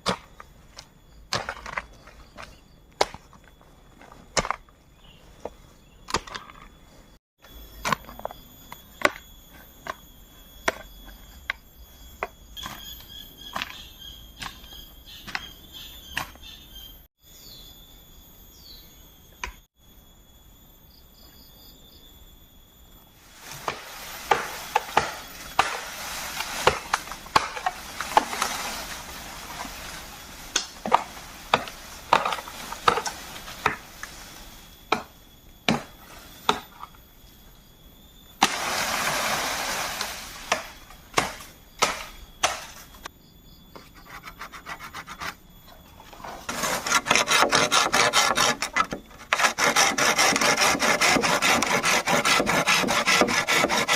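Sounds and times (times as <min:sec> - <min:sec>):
insects buzzing: 0:00.0 - 0:53.9
steady hiss: 0:38.4 - 0:40.9.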